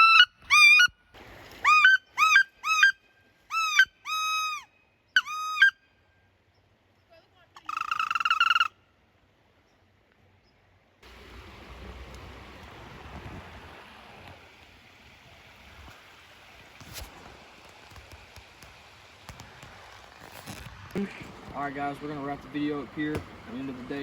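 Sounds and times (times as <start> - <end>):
high two-toned call: 1.6 - 6.1, 7.6 - 8.8
rushing outdoor noise: 11.0 - 24.0.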